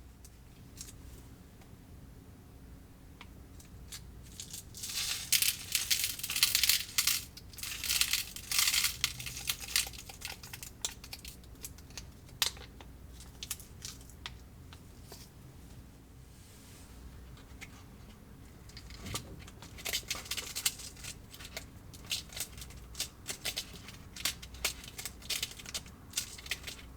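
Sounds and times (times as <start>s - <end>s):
plastic packaging crinkling: 4.3s - 11.8s, 19.8s - 26.9s.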